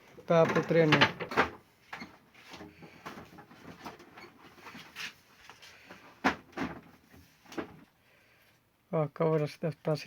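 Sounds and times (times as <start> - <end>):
plastic parts clicking and knocking: 0.3 - 4.3.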